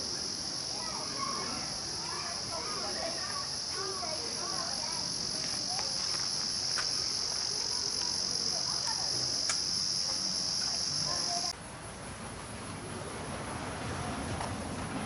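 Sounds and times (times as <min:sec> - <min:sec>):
crickets chirring: 0:00.0 - 0:15.0
faint sharp clicks: 0:09.4 - 0:09.6.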